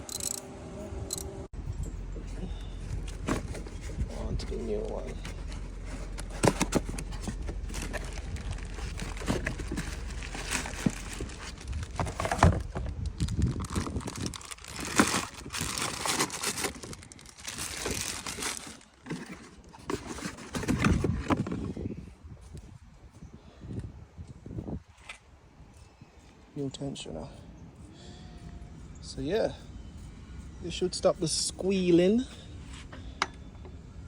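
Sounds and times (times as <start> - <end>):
packaging crinkling and tearing: 5.1 - 21.2.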